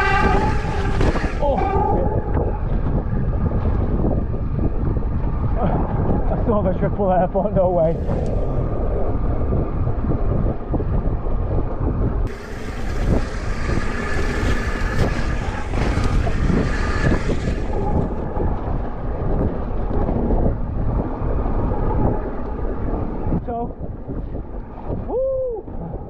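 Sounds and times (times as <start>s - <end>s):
wind buffeting microphone: 0.0s - 26.0s
loud hiss: 12.3s - 18.0s.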